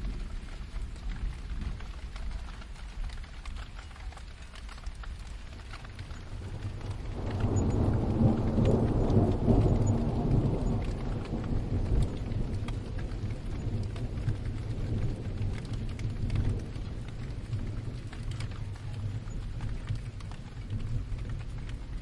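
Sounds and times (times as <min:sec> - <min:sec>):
raindrops pattering: 0:00.0 - 0:22.0
thunder rumble: 0:00.0 - 0:22.0.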